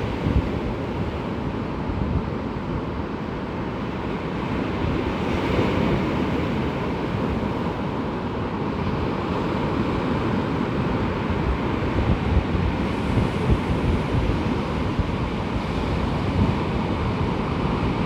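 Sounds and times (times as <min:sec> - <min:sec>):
surf washing on beach: 0:00.0 - 0:18.0
wind buffeting microphone: 0:09.7 - 0:18.0.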